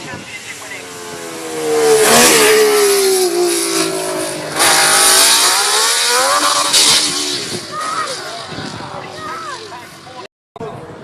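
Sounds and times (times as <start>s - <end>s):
racing car engine revving: 0.7s - 9.1s.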